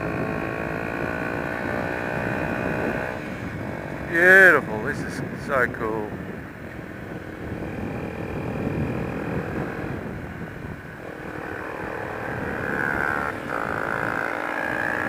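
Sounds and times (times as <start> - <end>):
motorcycle engine running: 0.0 - 4.7, 5.3 - 15.0
road and wind noise: 0.0 - 15.0.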